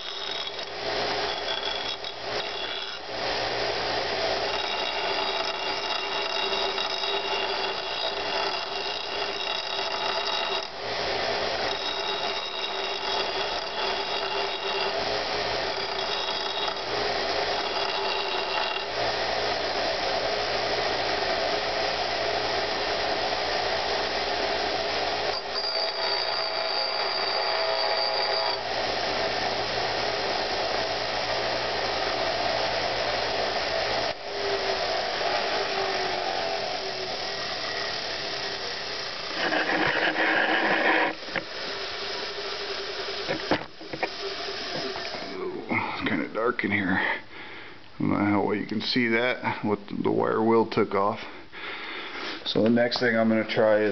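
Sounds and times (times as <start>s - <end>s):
wire wheel brushing metal: 0.0s - 19.8s, 25.2s - 28.7s, 34.3s - 45.4s
bench grinder whining: 0.0s - 46.3s.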